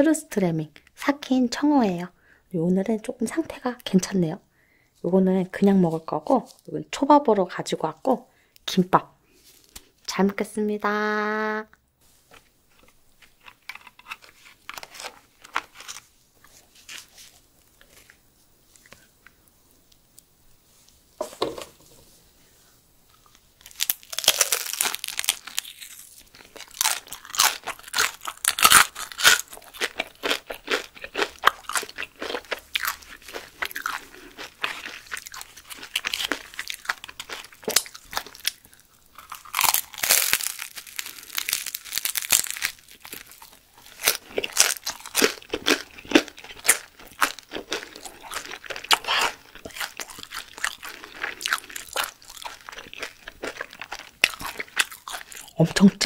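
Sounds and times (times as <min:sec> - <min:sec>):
crunching and chewing flatbread: 0:12.1 - 0:19.3, 0:23.1 - 0:56.0.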